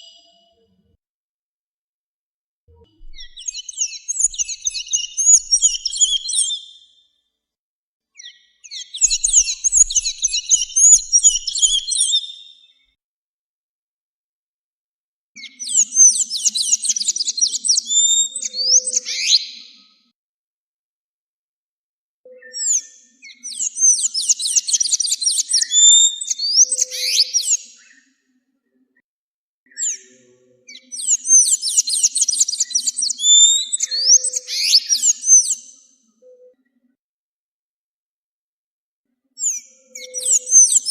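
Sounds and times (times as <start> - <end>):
bird singing sweeping notes: 3.0 - 6.6, 8.8 - 12.2, 39.5 - 40.9
songbird warbling: 9.0 - 12.1.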